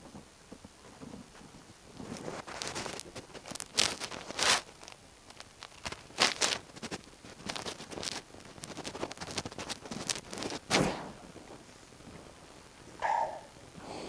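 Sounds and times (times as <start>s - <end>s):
rustling and scraping materials: 0.0s - 12.4s.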